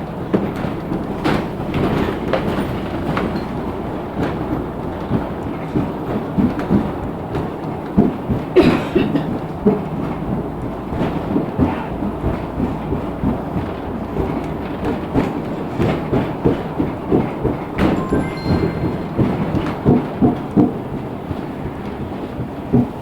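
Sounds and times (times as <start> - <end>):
bus body knocking and rattling: 0.0 - 17.7
bus engine and tyres rumbling: 0.0 - 17.8.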